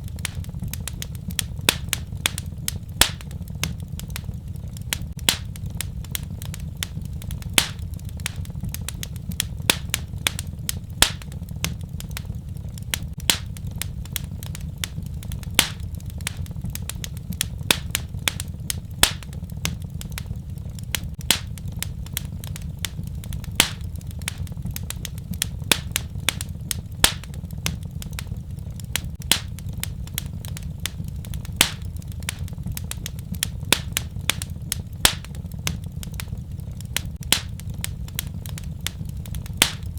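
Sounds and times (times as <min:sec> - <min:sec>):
fire crackling and popping: 0:00.0 - 0:39.9
low rumble of flame: 0:00.0 - 0:39.9.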